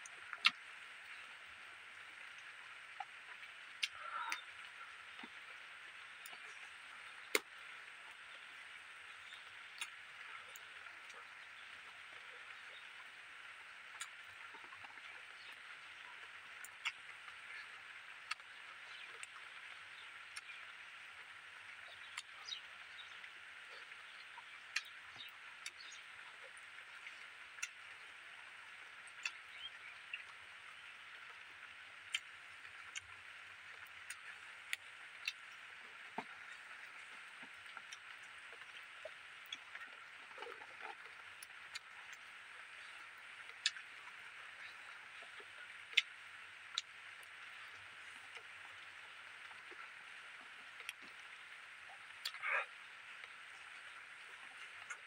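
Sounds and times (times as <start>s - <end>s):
steady high outdoor hiss: 0.0s - 55.0s
mouth clicks and smacks chewing: 0.3s - 1.2s, 2.2s - 5.5s, 9.2s - 12.8s, 13.8s - 20.9s, 21.8s - 28.1s, 29.0s - 30.4s, 32.1s - 48.6s, 50.7s - 51.2s, 52.1s - 54.0s, 54.6s - 55.0s.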